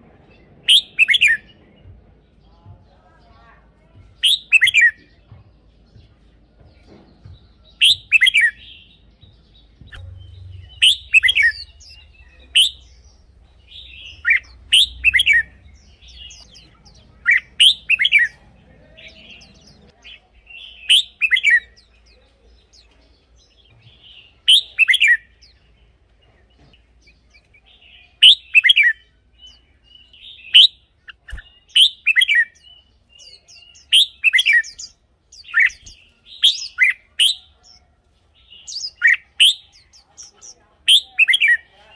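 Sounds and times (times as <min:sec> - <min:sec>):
bulbul whistled song: 0:00.6 - 0:01.6, 0:04.2 - 0:05.1, 0:07.7 - 0:18.4, 0:20.6 - 0:21.9, 0:24.4 - 0:25.6, 0:28.2 - 0:37.8, 0:38.7 - 0:40.1.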